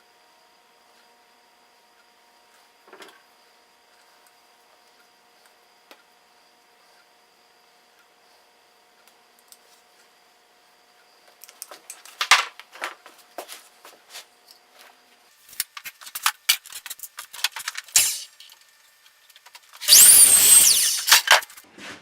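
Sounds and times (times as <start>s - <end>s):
power tool running: 17.9s - 18.4s, 19.8s - 21.6s.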